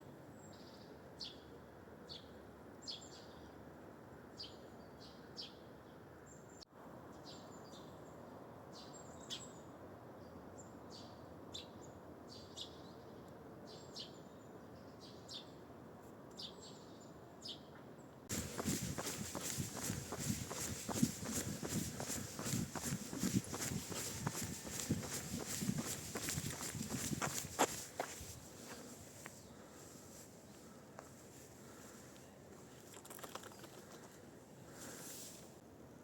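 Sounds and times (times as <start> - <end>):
loud scuffing noise: 18.3 - 30.4
small birds chirping: 18.3 - 35.0.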